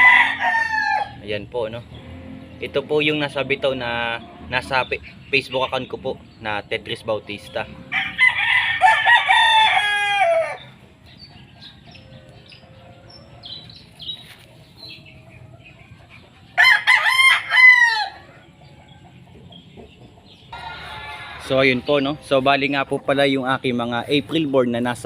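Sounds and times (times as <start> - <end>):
rooster crowing: 0.0 - 1.2, 7.9 - 10.7, 16.6 - 18.6, 20.5 - 21.7.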